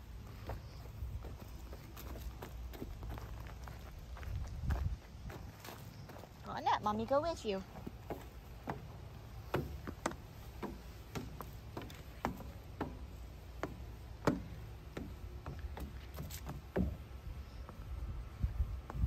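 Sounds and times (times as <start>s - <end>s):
footsteps on playground equipment: 0.0s - 19.0s
wind rumble on microphone: 2.8s - 5.7s, 16.8s - 19.0s.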